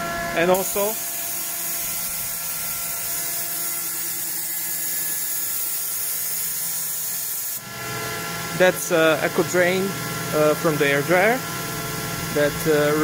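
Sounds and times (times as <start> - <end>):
compressor humming: 0.0 - 13.0
compressed air hissing: 0.4 - 7.6.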